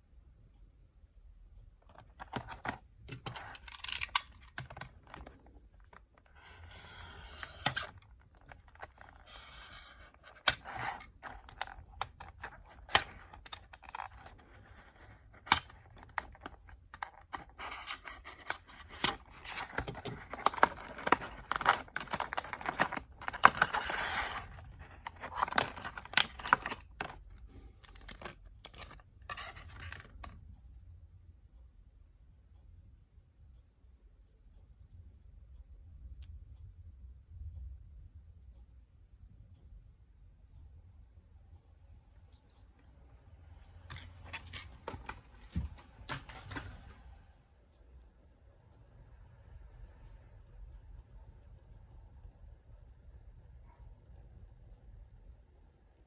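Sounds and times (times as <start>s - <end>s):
plastic packaging crinkling: 7.4s - 27.2s.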